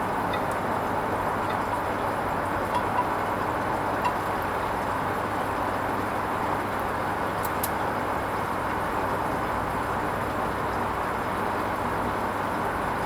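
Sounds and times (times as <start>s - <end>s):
faint small clicks: 7.4s - 7.8s.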